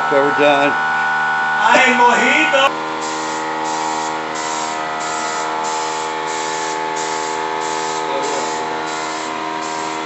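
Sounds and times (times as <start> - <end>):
motor humming: 0.0 - 10.0
paint spray hissing: 3.0 - 10.0.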